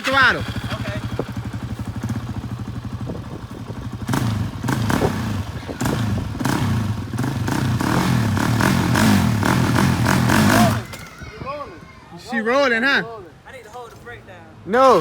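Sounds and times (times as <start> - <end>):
atv engine revving: 0.0 - 10.9
engine clatter: 0.0 - 10.9.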